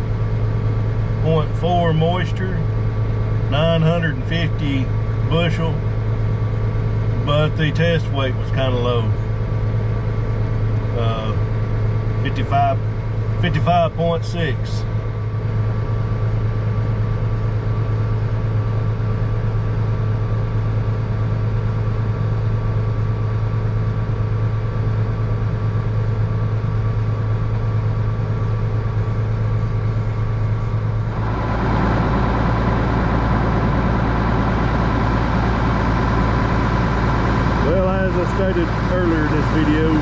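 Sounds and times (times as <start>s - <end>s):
combine harvester engine hum: 0.0s - 40.0s
constant whine: 0.0s - 40.0s
rushing noise: 31.1s - 37.8s.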